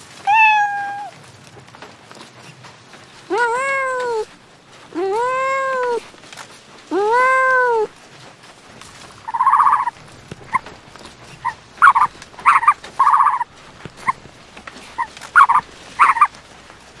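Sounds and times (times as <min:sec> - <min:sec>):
kitten meowing: 0:00.2 - 0:01.1, 0:03.3 - 0:04.3
high buzzy animal calls: 0:09.3 - 0:10.6, 0:11.4 - 0:14.2, 0:15.0 - 0:16.3.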